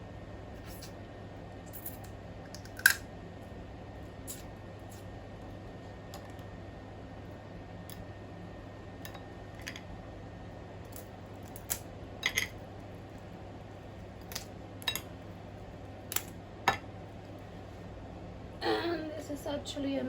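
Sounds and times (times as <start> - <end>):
crab shell cracking: 2.5 - 3.0.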